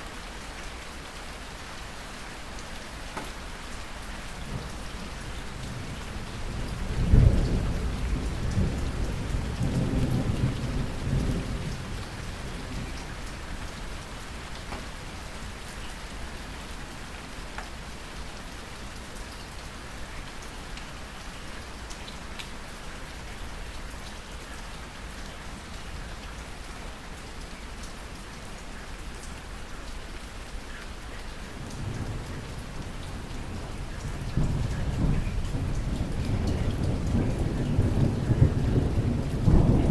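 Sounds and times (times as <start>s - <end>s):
steady rain falling: 0.0s - 39.9s
thunder rumbling: 31.6s - 39.9s.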